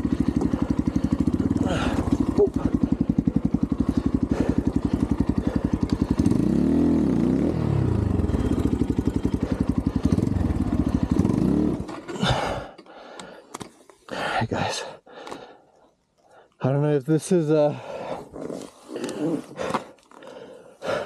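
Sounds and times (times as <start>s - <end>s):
dirt bike engine idling and revving: 0.0s - 12.8s.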